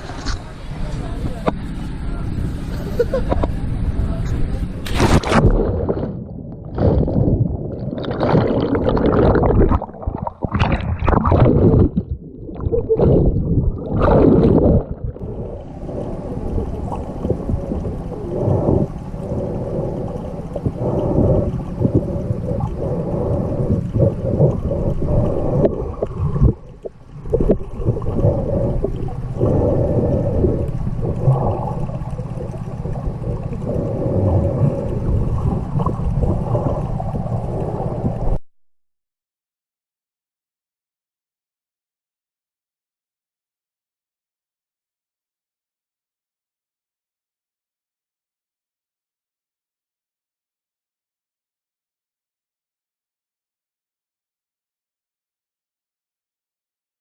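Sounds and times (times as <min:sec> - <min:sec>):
muffled water sloshing and gurgling: 0:00.0 - 0:38.4.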